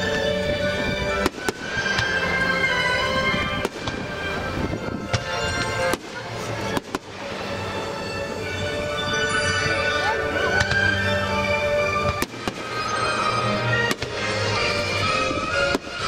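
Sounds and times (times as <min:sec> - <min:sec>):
music: 0:00.0 - 0:16.0
fireworks bangs: 0:01.1 - 0:07.8, 0:12.0 - 0:13.2, 0:13.8 - 0:16.0.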